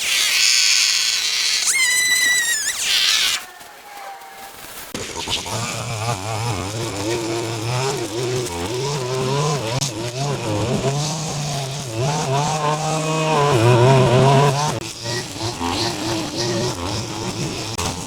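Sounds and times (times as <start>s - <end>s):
two-stroke power tool engine: 4.9s - 18.0s.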